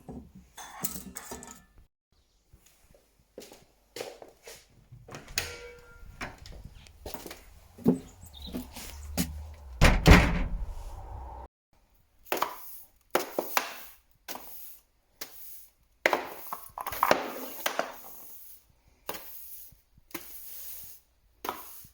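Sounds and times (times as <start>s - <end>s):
knocks and clatters: 7.8s - 10.9s
loud wooden thud: 9.7s - 10.8s.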